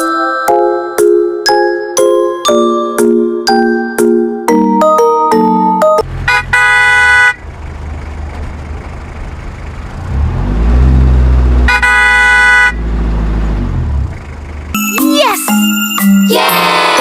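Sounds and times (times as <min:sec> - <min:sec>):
low engine rumble: 0:06.0 - 0:14.8
truck horn: 0:06.2 - 0:07.4, 0:11.2 - 0:13.0.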